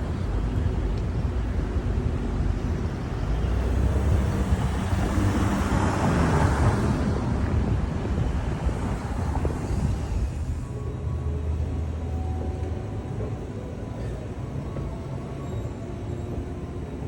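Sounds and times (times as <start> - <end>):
vehicle rumble: 0.0 - 17.0.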